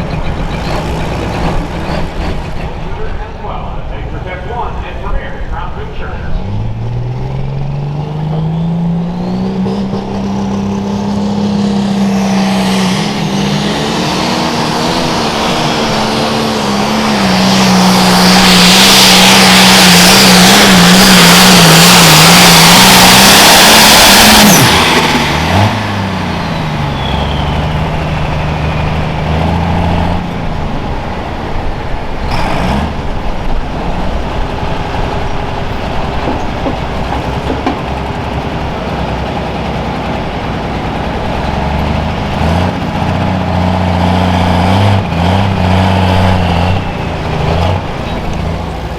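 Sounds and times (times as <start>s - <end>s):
tractor diesel engine at full throttle: 0.0s - 48.9s
turbo whine: 4.0s - 48.9s.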